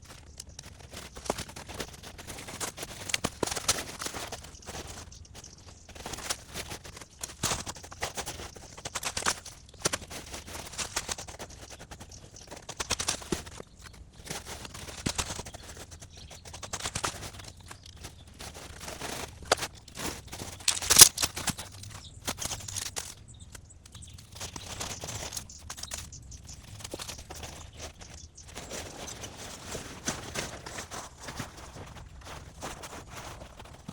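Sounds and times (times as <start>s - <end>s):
crunching and rustling: 0.0s - 33.9s
sharp crack: 20.6s - 21.4s.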